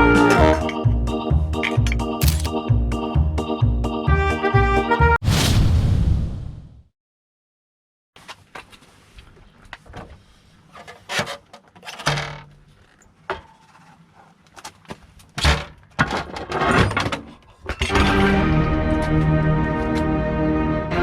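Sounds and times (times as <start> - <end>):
metal tools clinking and scraping: 1.6 - 2.6.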